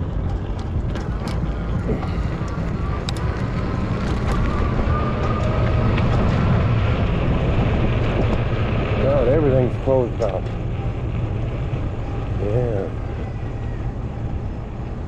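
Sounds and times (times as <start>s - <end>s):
wind rumbling on microphone: 0.0s - 15.0s
bike tyre noise: 0.5s - 15.0s
faint rising whine: 0.9s - 15.0s.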